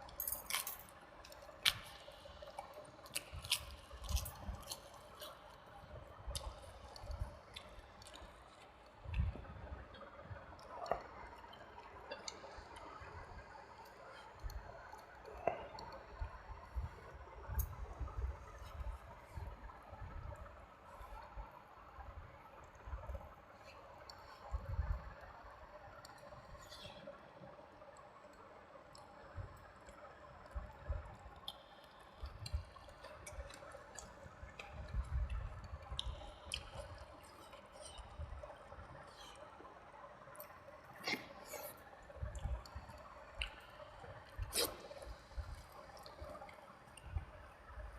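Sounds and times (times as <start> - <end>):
wet chewing and mouth smacks: 0.5 - 5.7, 6.3 - 9.4, 31.4 - 39.4, 40.4 - 47.2
small mouth clicks: 43.4 - 43.6, 44.4 - 45.2
sharp mouth clicks: 44.5 - 45.0.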